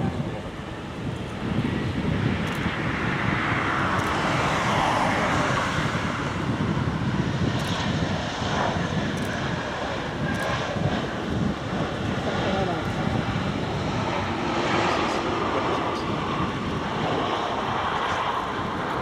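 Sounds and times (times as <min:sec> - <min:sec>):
jet airliner engines running: 0:00.0 - 0:19.0.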